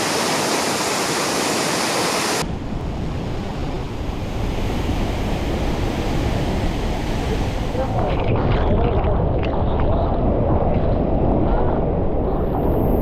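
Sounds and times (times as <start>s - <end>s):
waterfall roaring: 0.0s - 2.4s.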